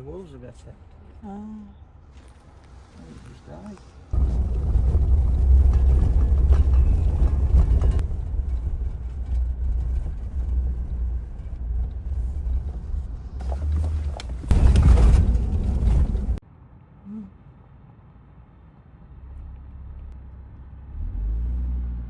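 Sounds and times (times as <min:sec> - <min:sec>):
car engine and road rumble: 0:00.0 - 0:22.0
knocks and rattles: 0:04.2 - 0:16.4.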